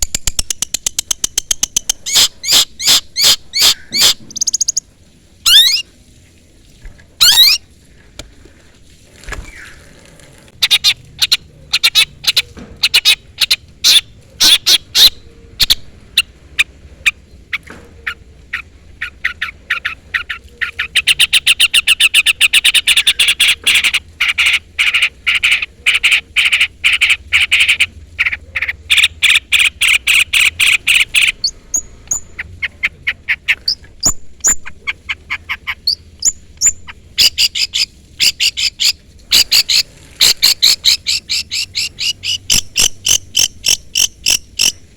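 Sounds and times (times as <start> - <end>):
shrike calling: 1.5 - 5.8, 7.2 - 7.6, 16.6 - 44.8.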